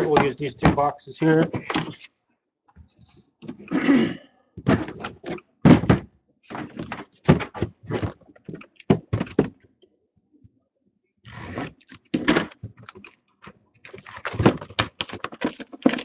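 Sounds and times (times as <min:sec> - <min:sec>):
card boxes knocking: 0:05.7 - 0:07.7
packaging rustling: 0:13.9 - 0:16.0.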